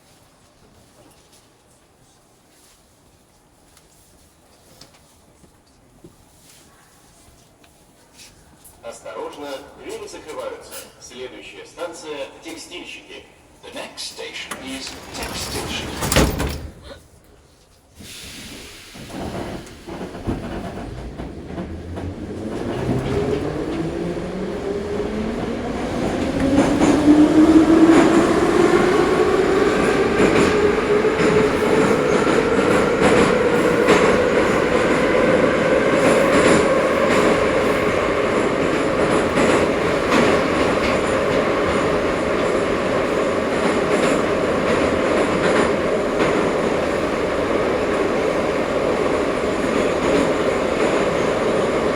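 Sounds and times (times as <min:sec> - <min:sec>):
metro train whine: 0:08.8 - 0:51.9
wheel and rail noise: 0:14.3 - 0:17.4.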